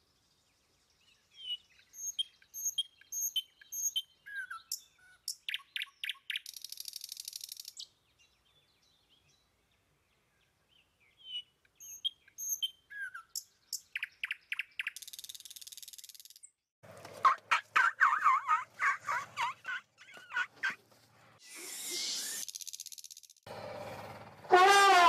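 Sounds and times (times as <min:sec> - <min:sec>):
birds chirping: 0:00.0 - 0:16.6, 0:17.2 - 0:21.4
rapid repeated bird calls: 0:01.3 - 0:07.9, 0:11.2 - 0:16.6, 0:17.2 - 0:20.9.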